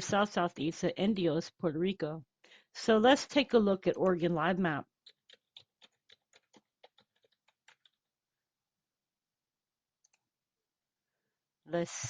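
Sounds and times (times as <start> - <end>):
typing on computer keyboard: 5.0 - 8.0.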